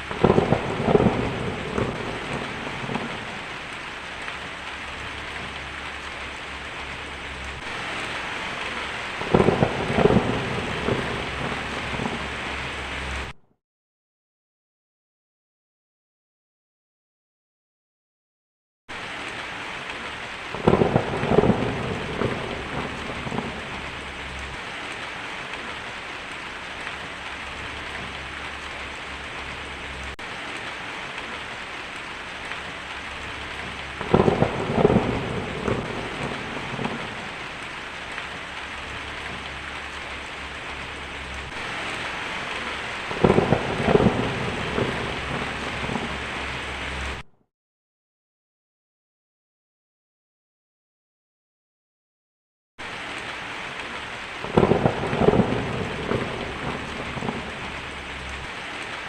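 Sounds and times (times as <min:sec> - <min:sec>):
thunder rolling: 0:00.0 - 0:03.7, 0:04.4 - 0:13.4, 0:20.5 - 0:24.7, 0:32.7 - 0:47.2, 0:54.4 - 0:58.4
heavy rain on a tin roof: 0:00.0 - 0:13.4, 0:18.9 - 0:47.3, 0:52.8 - 0:59.0.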